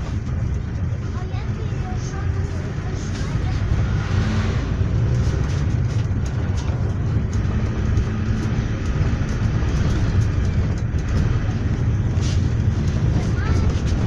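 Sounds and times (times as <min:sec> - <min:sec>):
low engine and road rumble: 0:00.0 - 0:14.0
faint clicks and rattles: 0:05.0 - 0:14.0.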